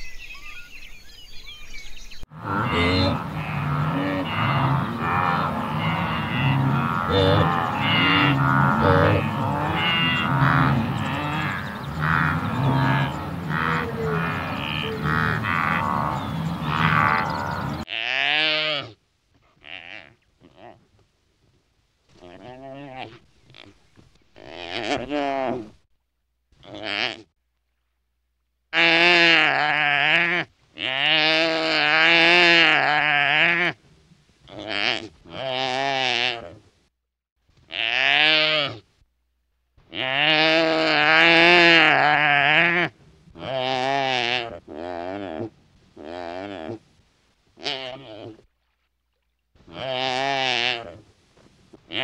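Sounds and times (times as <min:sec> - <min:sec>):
wildebeest grunting: 0:02.3 - 0:18.8, 0:39.9 - 0:46.8
animal bleating: 0:02.3 - 0:20.8, 0:26.6 - 0:27.3, 0:28.7 - 0:33.8, 0:34.5 - 0:36.6, 0:37.7 - 0:38.8, 0:39.9 - 0:46.8, 0:47.6 - 0:48.4, 0:49.7 - 0:51.0.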